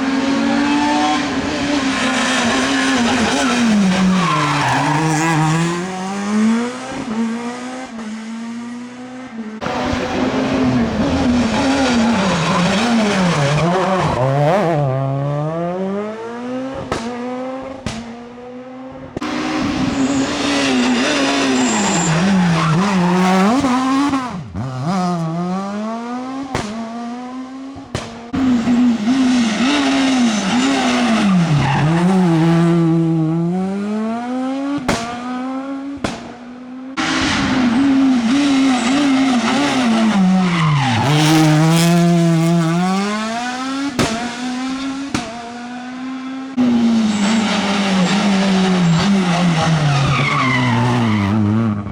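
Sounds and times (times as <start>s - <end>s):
rally car engines revving: 0.0s - 51.9s.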